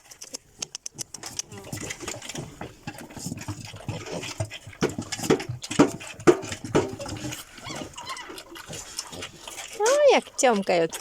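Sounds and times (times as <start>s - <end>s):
piglets grunting and smacking: 0.0s - 11.0s
faint piglet squeaks: 7.6s - 8.4s.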